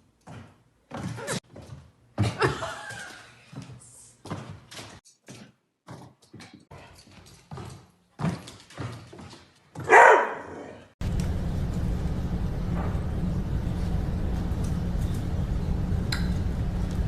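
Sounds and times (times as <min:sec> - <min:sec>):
dog barking: 0:09.8 - 0:10.9
low hum with hiss: 0:11.0 - 0:17.0.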